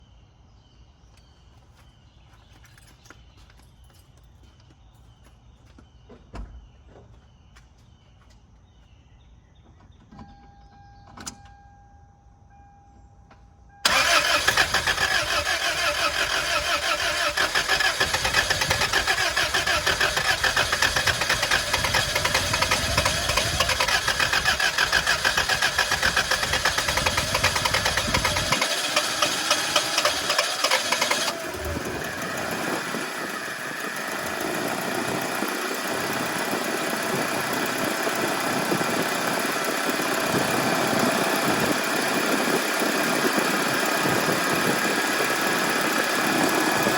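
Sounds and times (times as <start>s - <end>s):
engine running: 13.8s - 46.9s
starter cranking engine: 13.8s - 46.9s.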